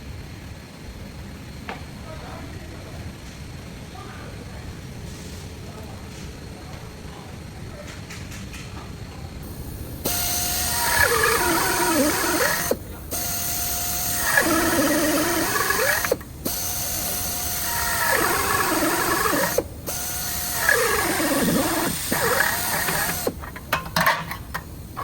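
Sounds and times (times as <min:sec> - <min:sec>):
mechanism whining: 0:09.4 - 0:25.0.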